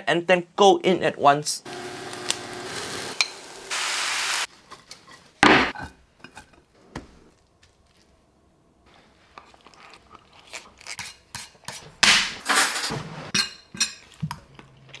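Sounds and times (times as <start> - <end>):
person chewing noodles: 8.9 - 11.6, 14.0 - 15.0.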